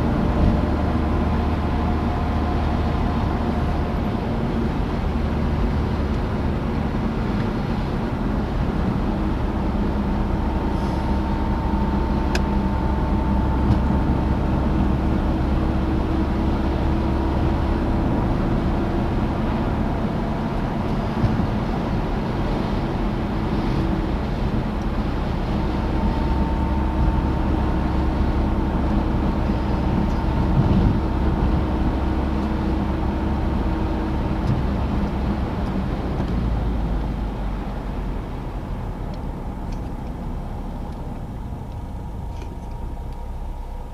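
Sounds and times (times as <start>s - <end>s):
car engine and road noise: 0.0s - 43.9s
faint whining tones: 23.5s - 33.7s.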